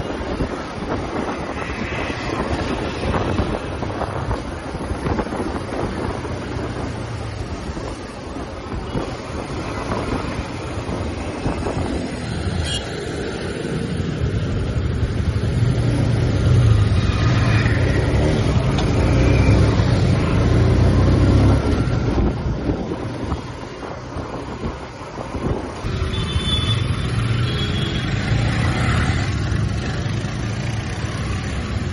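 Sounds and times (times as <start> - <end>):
motorcycle engine and exhaust: 0.0 - 31.9.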